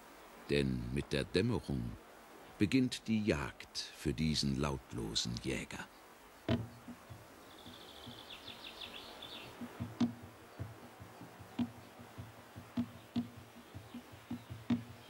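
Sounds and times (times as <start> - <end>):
low clicks and knocks: 6.5 - 7.2, 9.5 - 15.0.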